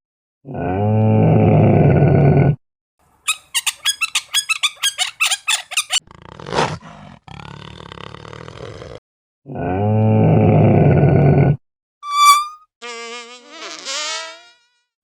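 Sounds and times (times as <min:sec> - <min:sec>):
sharp chattering pulses: 0:12.0 - 0:12.6.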